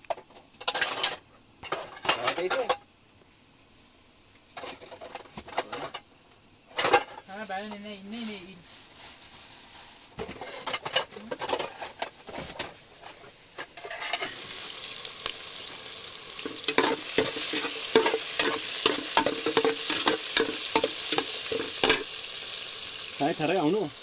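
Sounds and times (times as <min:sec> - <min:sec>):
food sizzling in a pan: 0:06.8 - 0:24.0
utensil scraping and clinking: 0:13.6 - 0:14.6, 0:16.3 - 0:22.1.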